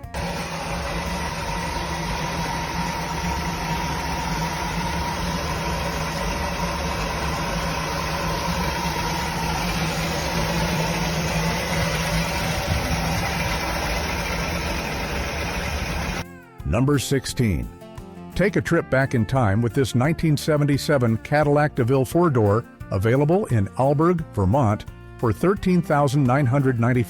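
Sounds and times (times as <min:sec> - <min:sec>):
car engine idling: 0:00.0 - 0:16.2.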